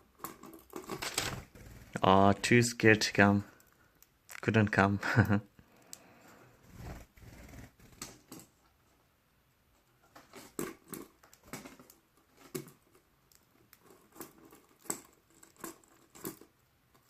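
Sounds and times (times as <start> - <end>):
birds pecking and cracking seed: 0.0 - 1.6, 5.6 - 6.2, 10.2 - 17.0.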